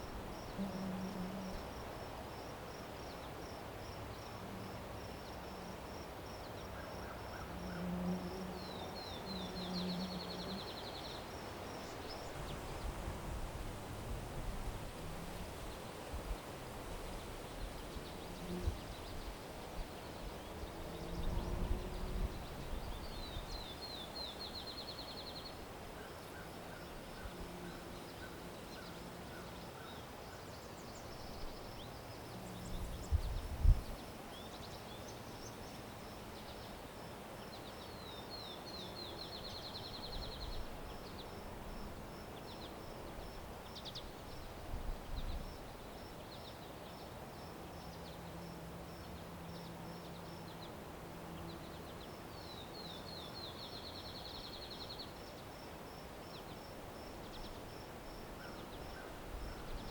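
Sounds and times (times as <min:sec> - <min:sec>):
songbird singing with trill: 0:37.4 - 0:55.5.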